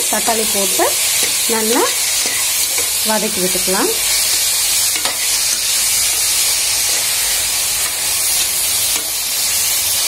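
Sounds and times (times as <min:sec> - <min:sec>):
vegetables sizzling in hot oil: 0:00.0 - 0:10.0
metal spoon stirring in pot: 0:01.0 - 0:03.0, 0:04.0 - 0:09.7.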